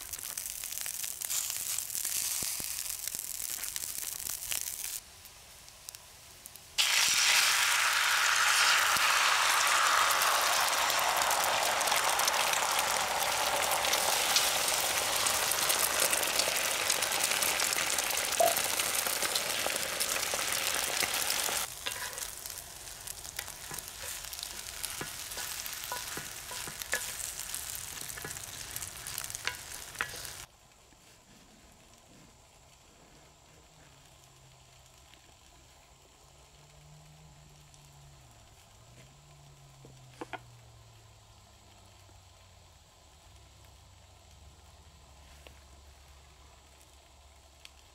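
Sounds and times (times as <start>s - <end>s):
food sizzling in a pan: 0.0s - 30.5s.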